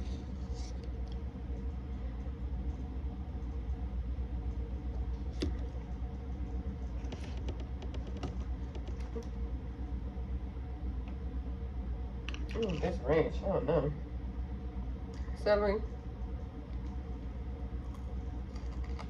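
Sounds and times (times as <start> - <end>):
steady low hum: 0.0 - 19.0
chewing food: 17.8 - 19.0.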